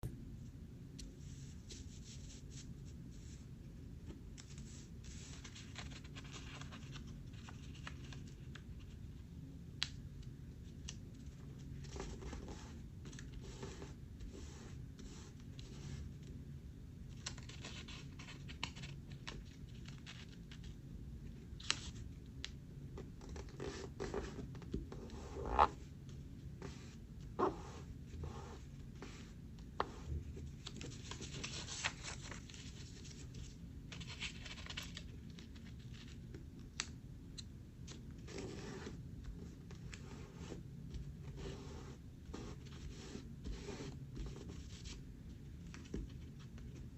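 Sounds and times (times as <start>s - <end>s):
low room hum: 0.0s - 46.9s
paper rustling and crinkling: 4.4s - 9.0s, 17.2s - 20.8s, 30.0s - 36.4s.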